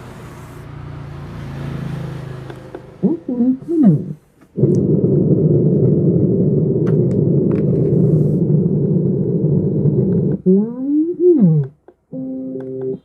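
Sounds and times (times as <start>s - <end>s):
speaker low rumbling noise: 3.0s - 11.7s.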